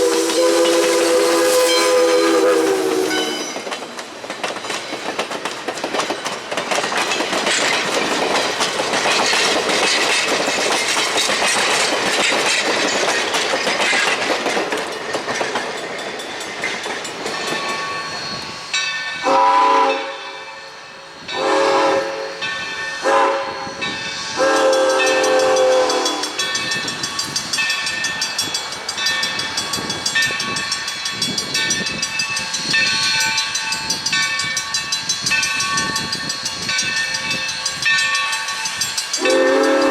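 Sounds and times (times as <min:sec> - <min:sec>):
steam locomotive chime whistle: 0:00.0 - 0:03.7, 0:17.3 - 0:39.9
steam train rushing noise: 0:00.0 - 0:39.9
train rolling noise: 0:00.0 - 0:39.9.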